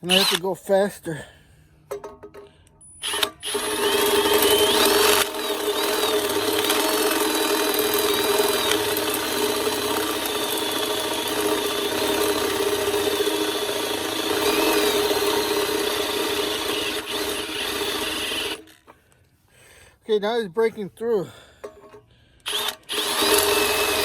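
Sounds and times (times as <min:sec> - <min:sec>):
drill bit squealing on metal: 0:00.0 - 0:00.5
electric drill motor hum: 0:00.1 - 0:00.4, 0:03.0 - 0:18.8, 0:22.4 - 0:24.0.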